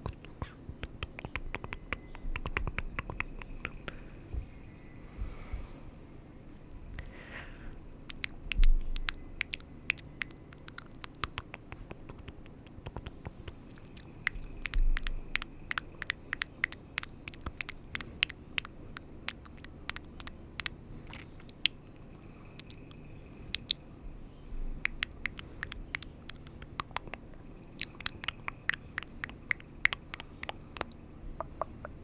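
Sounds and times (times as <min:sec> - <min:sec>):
sharp clicks and taps: 0:00.0 - 0:04.0, 0:08.1 - 0:21.8, 0:24.8 - 0:32.0
soft low thumps: 0:00.7 - 0:05.8, 0:08.5 - 0:09.2.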